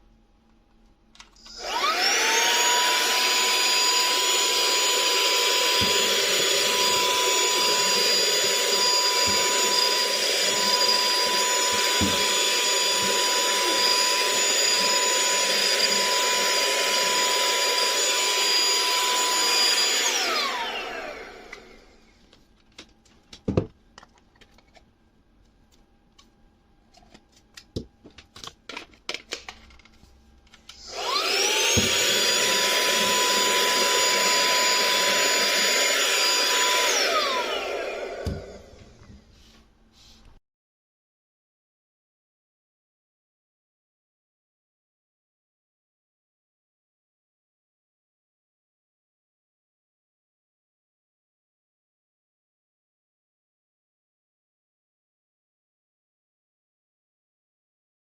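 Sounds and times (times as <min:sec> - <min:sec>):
handheld vacuum whining: 0:01.4 - 0:22.0, 0:30.6 - 0:39.0.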